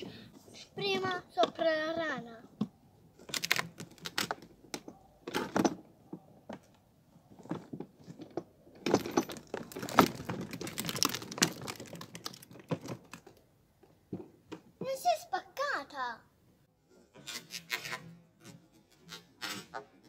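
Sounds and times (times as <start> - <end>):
plastic wheel rolling over toy: 9.1 - 13.4.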